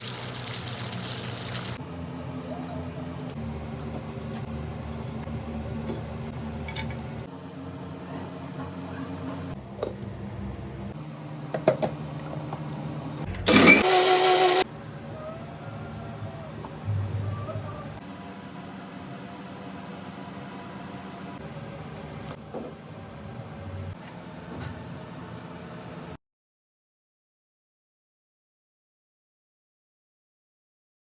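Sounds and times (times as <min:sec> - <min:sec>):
electric mixer grinder whirring: 0:13.4 - 0:14.6.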